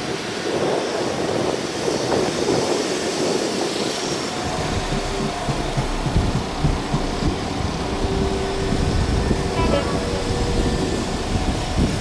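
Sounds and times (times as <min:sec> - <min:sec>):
train wheels running on rails: 0:00.0 - 0:12.0
low buffeting thumps: 0:04.4 - 0:09.6.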